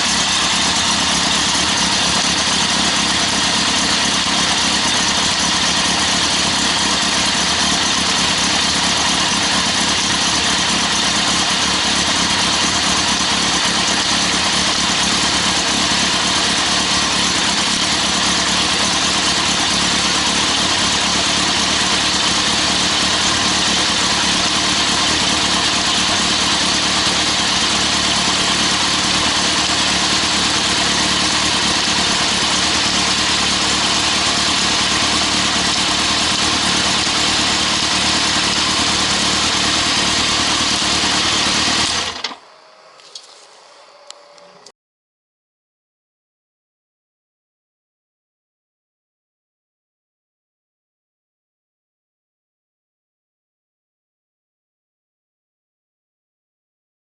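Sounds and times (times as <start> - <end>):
motorcycle engine idling: 0.0 - 42.4.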